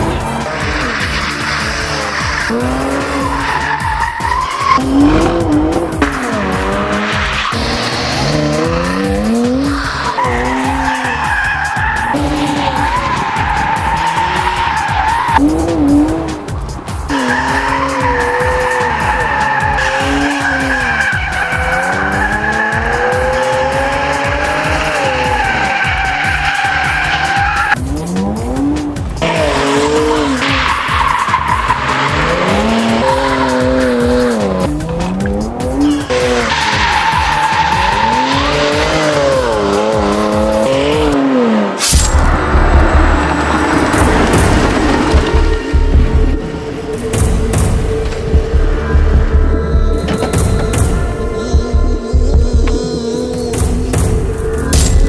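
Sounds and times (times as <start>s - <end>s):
tyres squealing: 0.0s - 27.8s, 28.4s - 42.0s
car engine revving: 0.0s - 55.0s.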